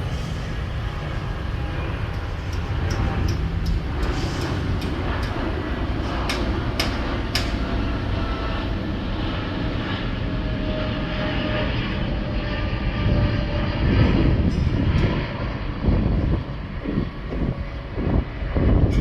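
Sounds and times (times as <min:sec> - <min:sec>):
train carriage rumble: 0:00.0 - 0:09.2.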